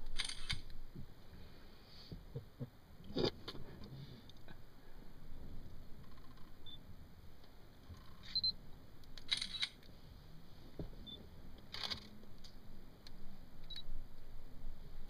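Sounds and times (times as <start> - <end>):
camera shutter clicking: 0.2 - 0.7, 9.2 - 9.8.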